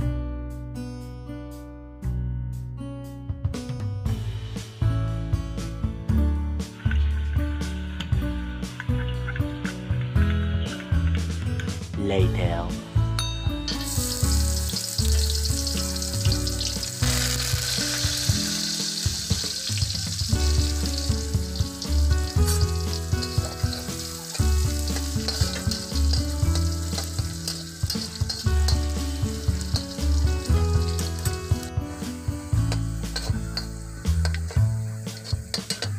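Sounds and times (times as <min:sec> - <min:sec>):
background music: 0:00.0 - 0:35.9
food sizzling in wok: 0:13.7 - 0:35.9
metal spatula scraping pan: 0:22.4 - 0:31.4, 0:32.7 - 0:35.9.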